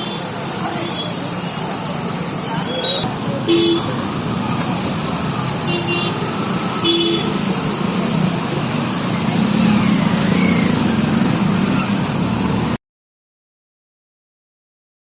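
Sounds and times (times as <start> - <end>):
road traffic: 0.0 - 12.8
car horn toot: 2.8 - 4.0, 5.6 - 6.2, 6.8 - 7.4.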